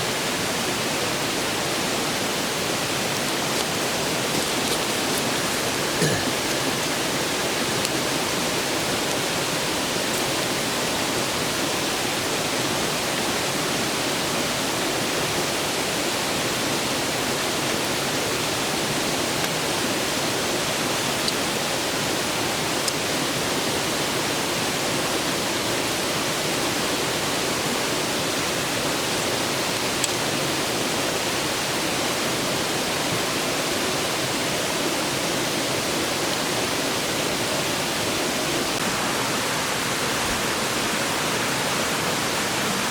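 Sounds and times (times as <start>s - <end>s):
river rushing: 0.0s - 42.9s
faint campfire crackles: 2.5s - 12.0s.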